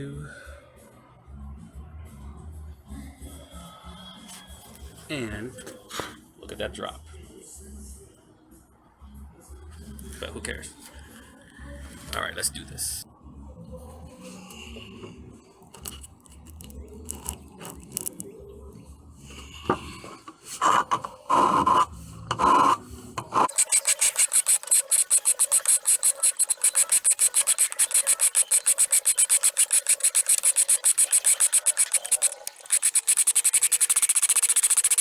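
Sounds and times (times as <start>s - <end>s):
hand file rasping on steel: 23.4s - 35.0s.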